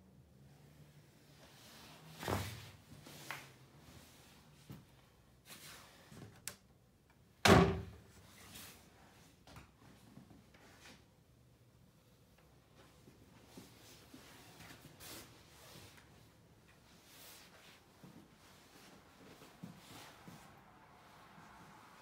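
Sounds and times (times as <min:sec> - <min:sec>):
door banging shut: 0:07.4 - 0:08.0.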